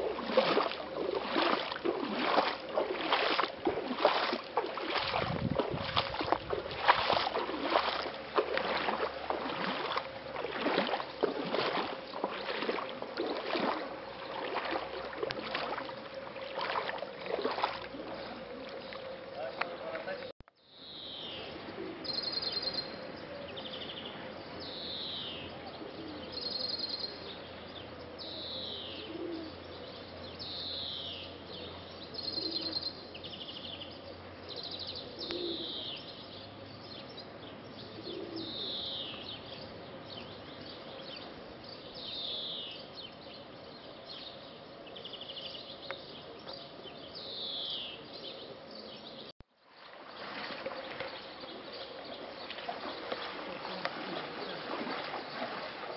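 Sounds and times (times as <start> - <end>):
birds chirping and trilling: 15.6 - 49.3, 50.1 - 55.9
low cooing: 28.9 - 29.6, 35.0 - 35.9.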